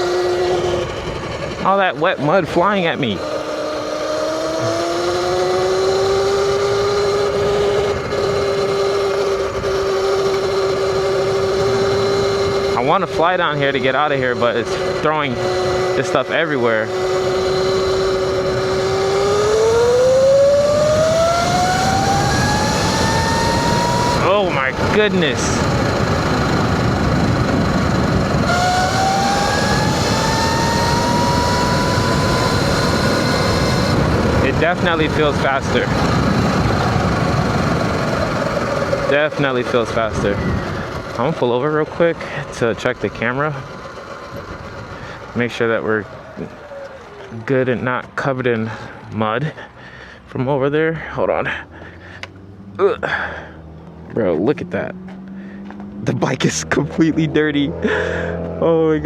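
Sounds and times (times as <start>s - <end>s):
electric dirt bike motor whining: 0.0s - 1.8s, 2.4s - 47.4s
wind on microphone: 40.0s - 41.2s.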